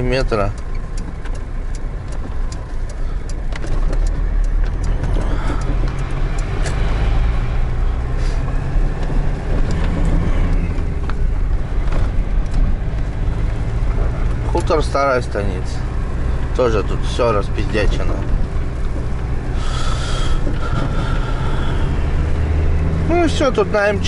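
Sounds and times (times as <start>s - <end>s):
van engine and road rumble: 0.0s - 24.0s.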